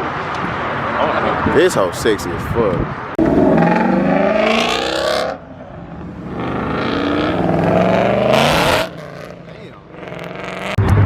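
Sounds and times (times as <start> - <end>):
car engine revving: 3.2 - 11.0.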